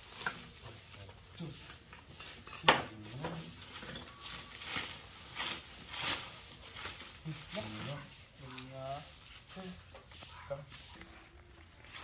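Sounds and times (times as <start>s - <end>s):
metal clinking and scraping: 1.6s - 7.0s, 10.7s - 12.0s.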